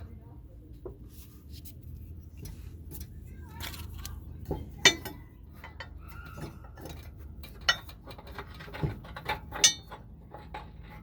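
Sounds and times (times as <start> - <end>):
metal clinks and taps: 4.5 - 11.0.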